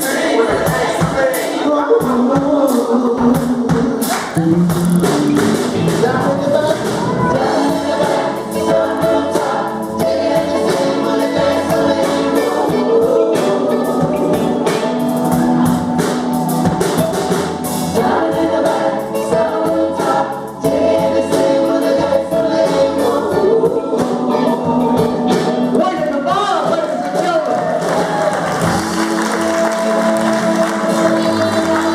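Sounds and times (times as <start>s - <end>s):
choir singing: 0.0s - 2.9s, 5.8s - 17.0s, 17.6s - 25.7s, 28.6s - 31.9s
band with percussion beat: 0.0s - 31.9s.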